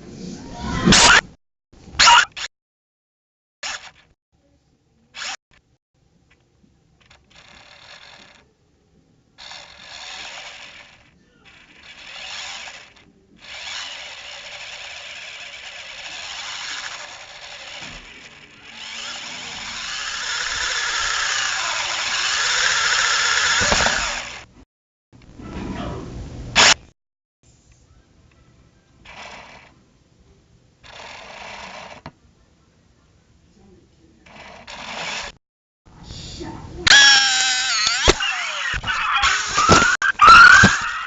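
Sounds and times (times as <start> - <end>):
drone propellers whirring: 9.4 - 24.5, 36.9 - 41.0.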